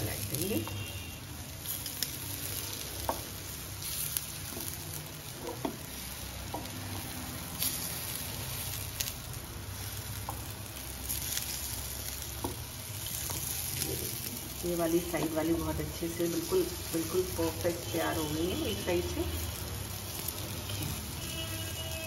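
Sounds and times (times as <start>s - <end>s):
patties sizzling in oil: 0.0s - 22.0s
wooden spatula taps and scrapes: 3.0s - 3.4s, 4.4s - 7.0s, 10.2s - 10.5s, 12.4s - 13.6s.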